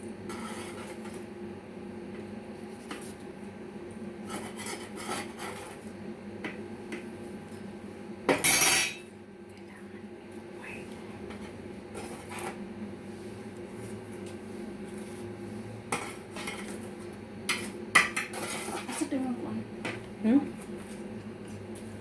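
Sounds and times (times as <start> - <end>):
steady low hum: 0.0 - 22.0
dishes and cutlery clattering: 8.3 - 9.1.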